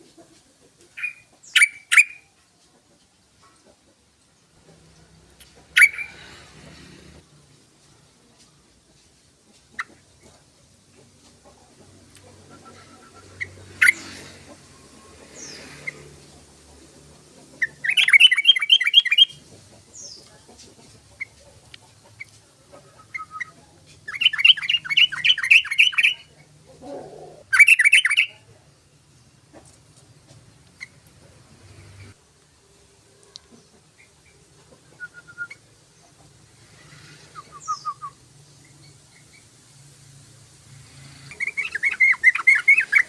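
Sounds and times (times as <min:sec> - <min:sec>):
bird chattering calls: 0:05.5 - 0:06.4, 0:12.2 - 0:14.5, 0:17.4 - 0:20.2, 0:21.1 - 0:26.3, 0:41.2 - 0:43.0.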